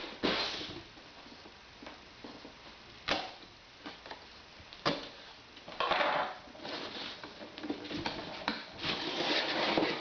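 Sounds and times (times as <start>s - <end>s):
cardboard scraping rustle: 6.6s - 10.0s.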